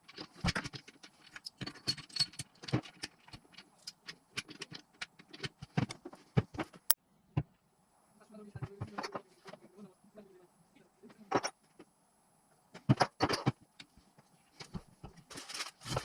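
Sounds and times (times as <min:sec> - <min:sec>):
hand tools and metal parts clinking: 0:00.0 - 0:06.0.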